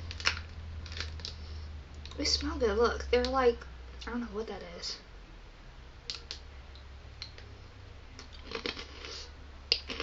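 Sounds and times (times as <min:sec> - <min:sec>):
rice cracker crunching: 0:00.1 - 0:01.4, 0:08.2 - 0:10.0.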